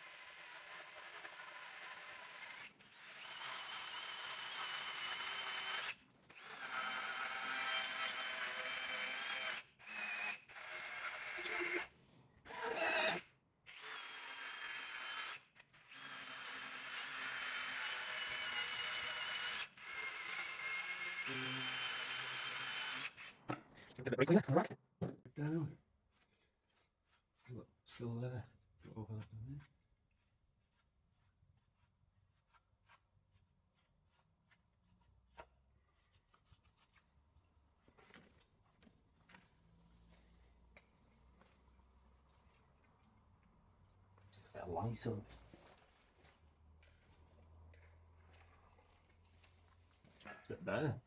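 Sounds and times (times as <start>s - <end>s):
power tool scouring metal: 0.1s - 11.9s, 12.5s - 13.2s, 13.8s - 23.5s.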